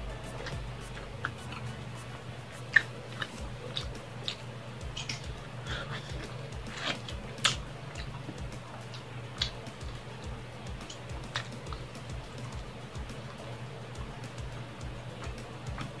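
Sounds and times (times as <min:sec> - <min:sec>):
steady low hum: 0:00.0 - 0:16.0
person chewing food: 0:00.1 - 0:10.0.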